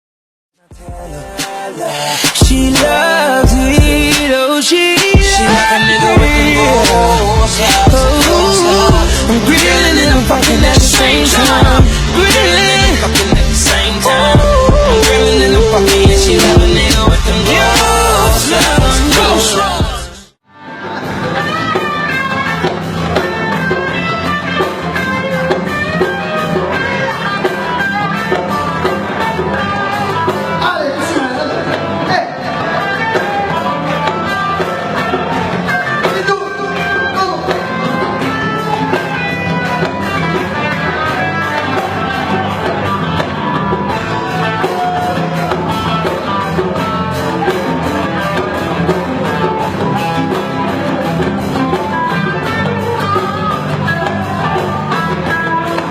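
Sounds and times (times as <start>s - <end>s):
live band instrumental music: 1.0s - 55.9s.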